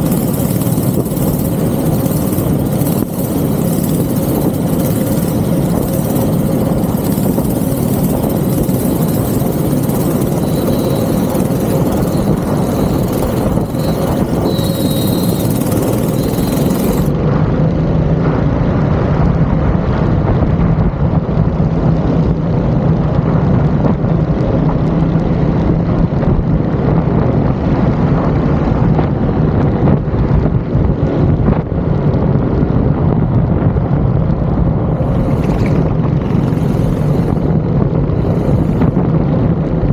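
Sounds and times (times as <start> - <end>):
go-kart engine droning: 0.0 - 20.3.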